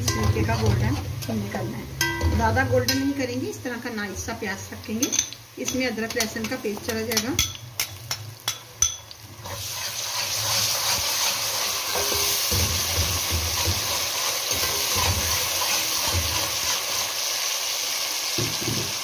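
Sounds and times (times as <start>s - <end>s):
food sizzling in hot oil: 0.0s - 19.0s
spatula stirring in metal pot: 5.1s - 17.0s.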